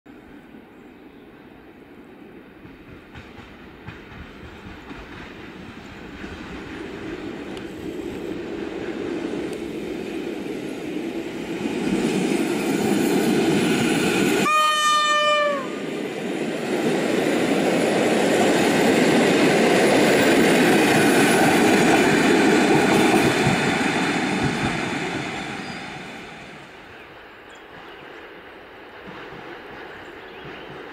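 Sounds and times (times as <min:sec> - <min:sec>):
train passing on rails: 0:00.1 - 0:30.9
train horn blast: 0:14.4 - 0:15.8.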